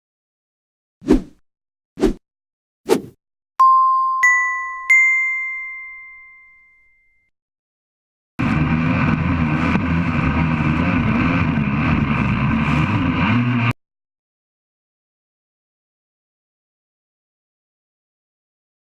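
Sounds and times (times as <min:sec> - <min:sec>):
electronic dings: 0:03.6 - 0:07.3.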